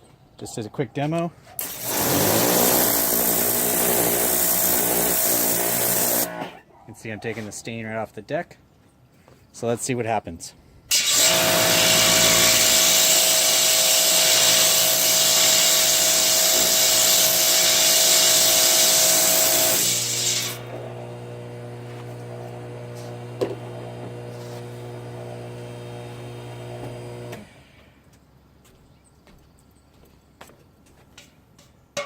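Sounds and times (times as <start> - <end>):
pressure washer spraying metal: 1.6 - 6.6, 10.9 - 20.8
pump motor whining: 1.6 - 6.6, 10.9 - 27.8.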